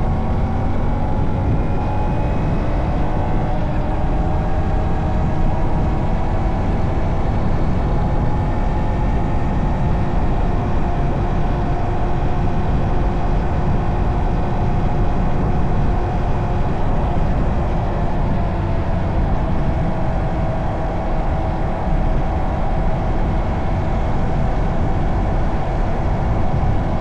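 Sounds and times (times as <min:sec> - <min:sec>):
rough low rumble: 0:00.0 - 0:27.0.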